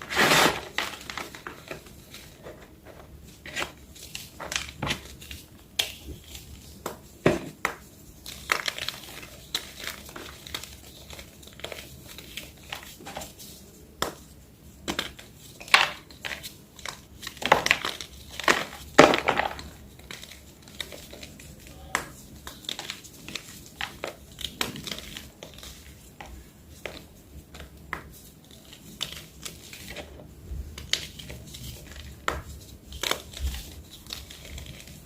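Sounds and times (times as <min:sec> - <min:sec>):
chalk crunching and crumbling: 0:00.0 - 0:05.4.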